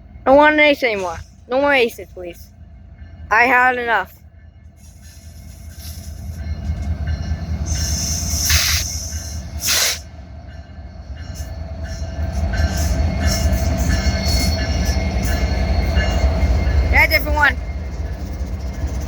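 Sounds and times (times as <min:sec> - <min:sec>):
train rumbling past: 0:00.0 - 0:19.0
short hissing bursts: 0:07.8 - 0:10.0.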